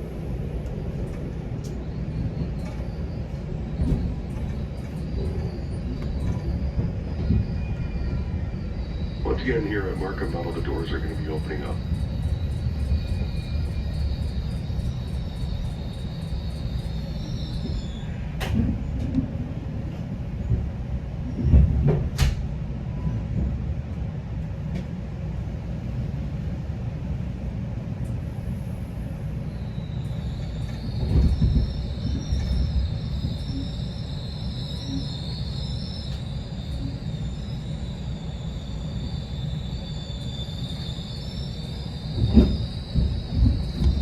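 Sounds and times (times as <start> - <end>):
train coach rumble: 0.0 - 44.0
thin high whine: 29.1 - 44.0.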